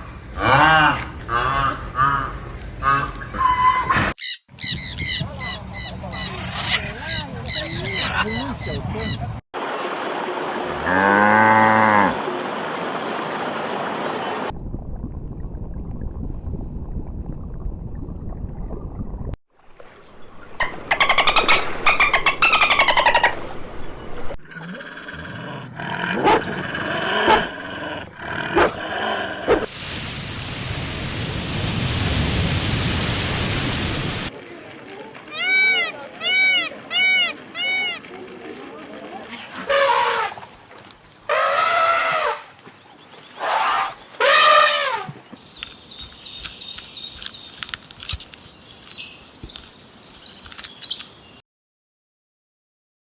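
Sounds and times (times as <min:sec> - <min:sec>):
animal calling loudly: 0:25.9 - 0:29.7, 0:35.3 - 0:38.0, 0:41.3 - 0:42.4
drawn-out animal calls: 0:35.3 - 0:38.1
quick high bird chirps: 0:45.4 - 0:51.4.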